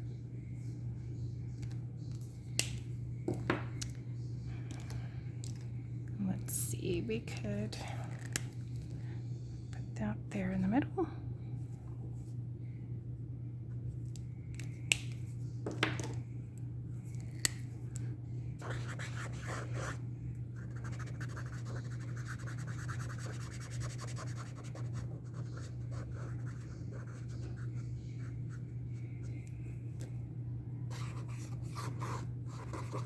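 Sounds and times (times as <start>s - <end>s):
steady low hum: 0.0s - 33.0s
marker nib scratching: 18.6s - 20.0s, 20.7s - 28.3s.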